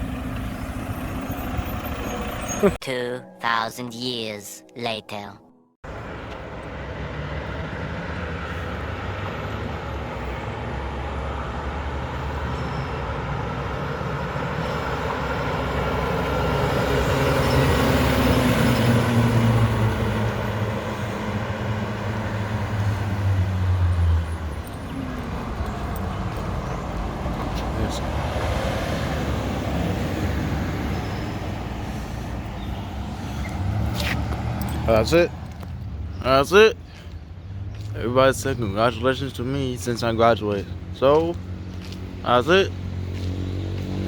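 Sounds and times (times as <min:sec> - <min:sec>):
garbage truck diesel engine: 0:00.0 - 0:02.8, 0:05.8 - 0:39.4.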